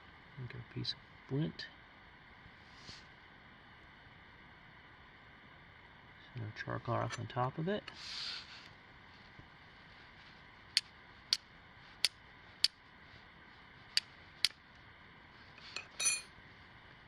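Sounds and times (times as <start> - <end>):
ringing metallic clink: 15.8 - 16.3.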